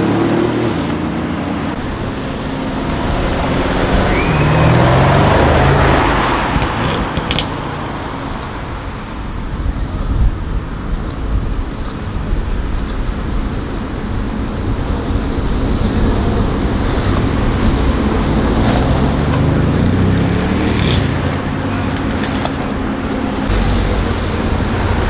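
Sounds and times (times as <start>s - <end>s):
low rumble of other engines: 0.0s - 25.0s
car driving past rumbling: 1.7s - 8.2s.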